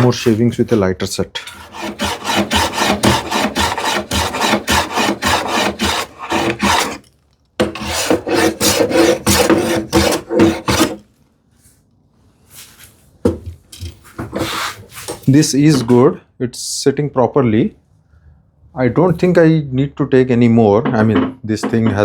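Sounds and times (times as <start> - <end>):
hand plane shaving wood: 1.6 - 7.0, 7.6 - 11.0.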